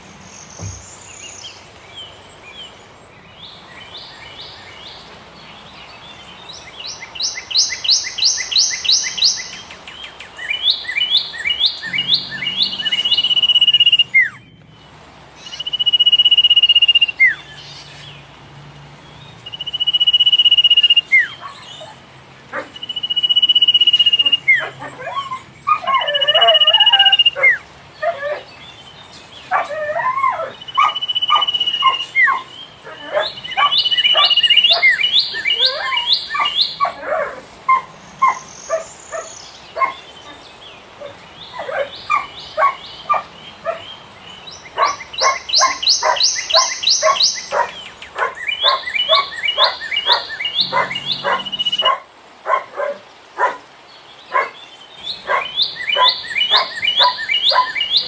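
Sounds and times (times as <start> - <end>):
bird singing chattering notes: 6.6 - 14.7, 44.2 - 51.9, 55.0 - 58.0.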